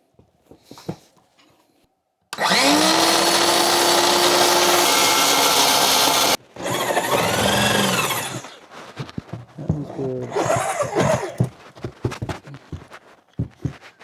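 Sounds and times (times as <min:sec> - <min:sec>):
power saw cutting wood: 0:02.4 - 0:08.6.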